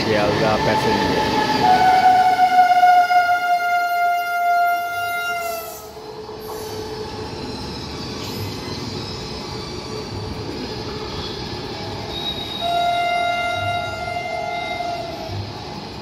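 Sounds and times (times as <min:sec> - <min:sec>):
train rumbling along the line: 0:00.0 - 0:16.0
train horn: 0:00.7 - 0:06.0, 0:12.2 - 0:15.4.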